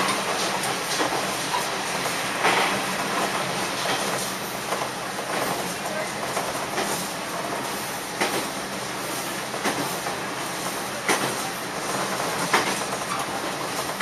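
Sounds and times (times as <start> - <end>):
train engine and wheels rumbling: 0.0 - 14.0
wheels clicking over rail joints: 11.0 - 14.0.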